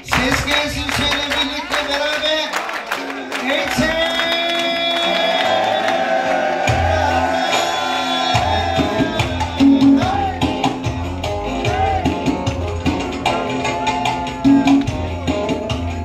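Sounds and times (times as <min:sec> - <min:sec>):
bass and drums: 0:06.6 - 0:16.0
folk band music: 0:06.7 - 0:16.0.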